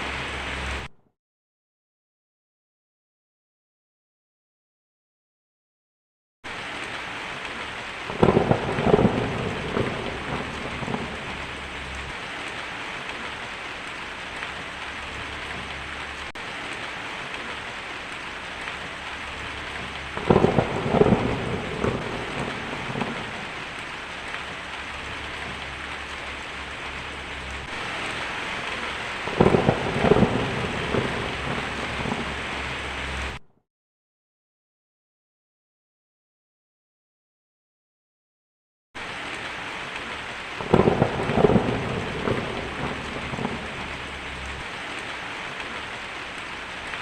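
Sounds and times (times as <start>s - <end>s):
steady rain falling: 0.0s - 0.9s, 6.5s - 33.4s, 39.0s - 47.0s
thunder rumbling and crackling: 6.5s - 33.4s, 39.0s - 47.0s.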